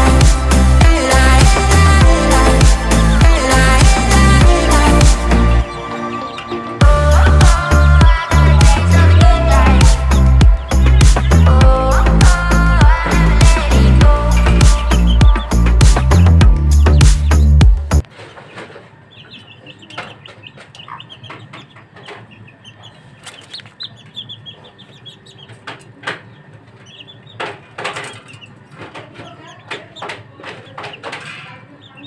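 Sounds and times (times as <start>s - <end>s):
background music: 0.0s - 18.0s
parrot chicks chattering: 0.0s - 32.0s.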